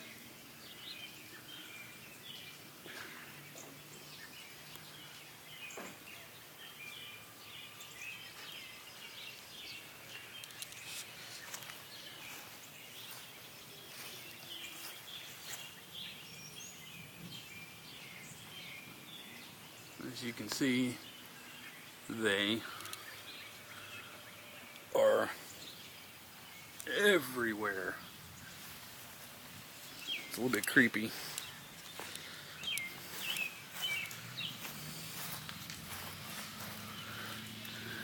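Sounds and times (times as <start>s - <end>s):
faint bird chirps: 0.0s - 29.2s, 29.8s - 38.0s
soft clicks: 10.4s - 10.9s.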